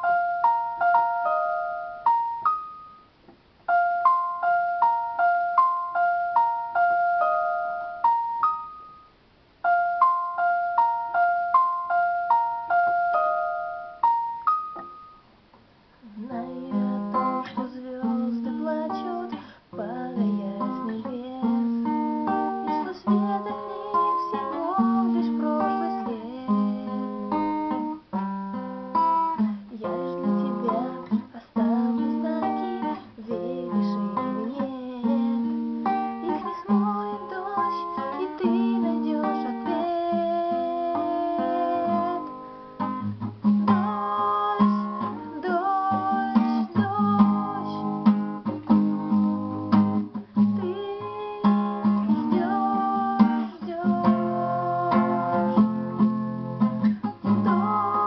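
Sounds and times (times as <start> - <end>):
solo guitar playing: 16.1 - 58.0.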